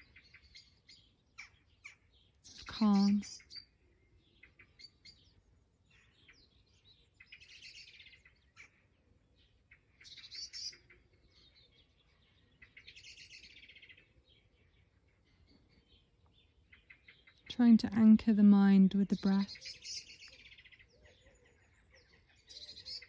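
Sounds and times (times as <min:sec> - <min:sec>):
songbird trilled phrases: 0:00.0 - 0:06.6, 0:15.8 - 0:23.0
faint bird chirps: 0:00.0 - 0:17.8, 0:19.0 - 0:23.0.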